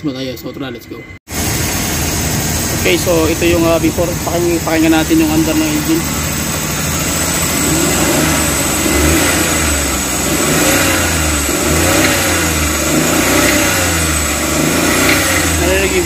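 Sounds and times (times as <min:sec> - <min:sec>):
car engine running: 0:01.3 - 0:16.0.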